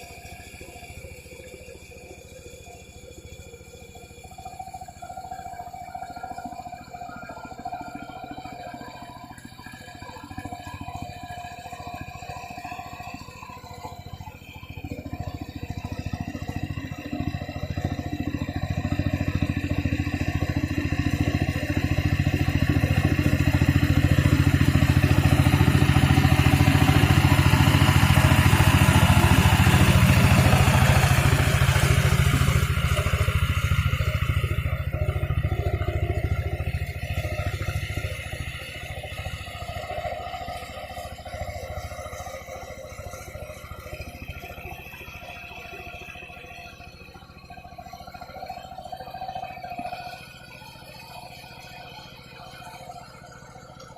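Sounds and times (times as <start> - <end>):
tractor engine chugging: 0.0 - 53.9.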